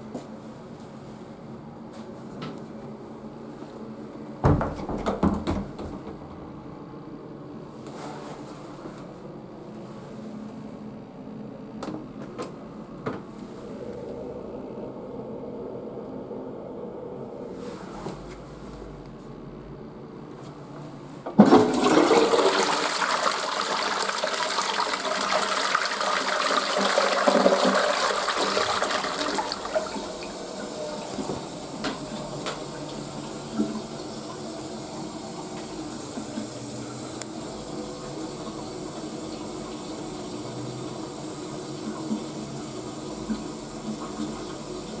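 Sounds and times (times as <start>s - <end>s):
toilet flushing: 4.4s - 6.8s, 21.3s - 45.0s
water running: 21.4s - 45.0s.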